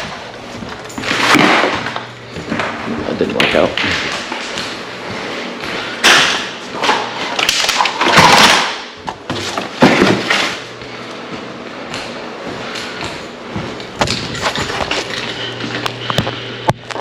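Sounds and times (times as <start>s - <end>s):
knocks and scraping clatter: 12.0s - 17.0s.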